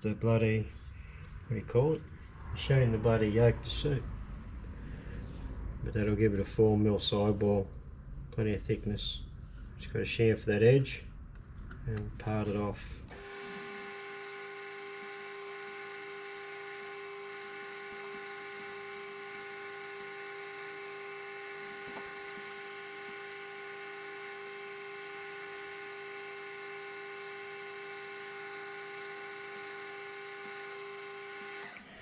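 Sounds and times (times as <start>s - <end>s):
metal lathe running: 13.1s - 31.9s.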